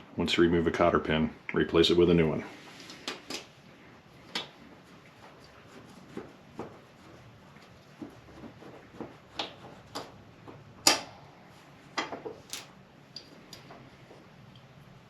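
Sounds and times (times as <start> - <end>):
metal parts clicking and knocking: 12.5 - 12.8.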